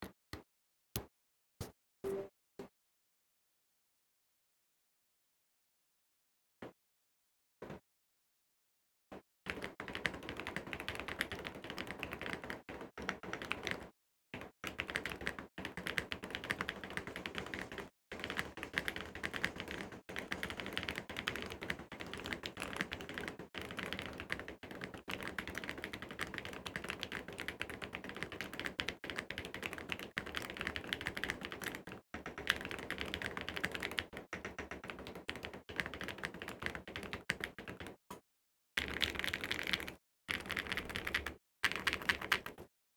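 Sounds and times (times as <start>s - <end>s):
mechanical keyboard typing: 9.5s - 38.0s, 38.8s - 42.7s.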